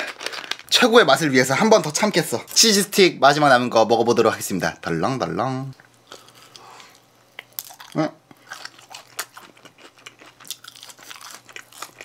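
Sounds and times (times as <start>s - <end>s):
person chewing food: 5.8s - 12.0s.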